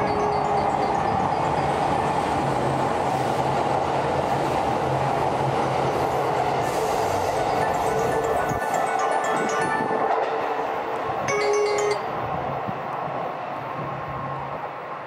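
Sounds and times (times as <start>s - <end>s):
wheels rushing on rail: 0.0s - 15.0s.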